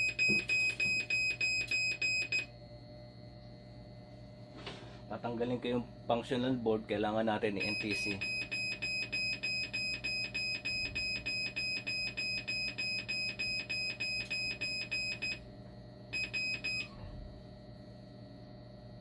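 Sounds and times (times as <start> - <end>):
machine alarm beeping rapidly: 0.0 - 2.5, 7.4 - 15.4, 16.1 - 16.9
steady machine hum: 0.0 - 19.0.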